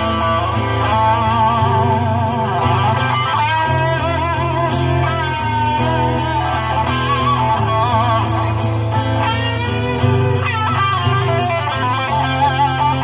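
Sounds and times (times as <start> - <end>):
bluesy electric guitar lead: 0.0 - 13.0
steady bass: 0.0 - 13.0.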